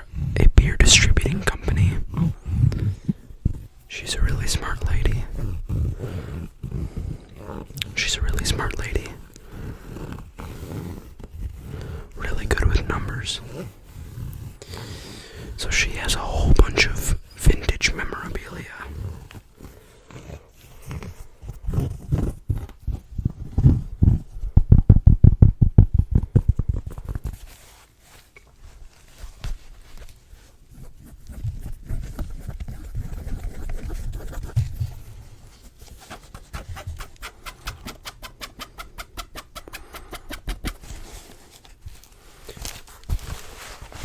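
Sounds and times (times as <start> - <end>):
soft hand rubbing: 0.0 - 25.0, 25.8 - 44.0
fingertip tapping on microphone: 24.0 - 27.1.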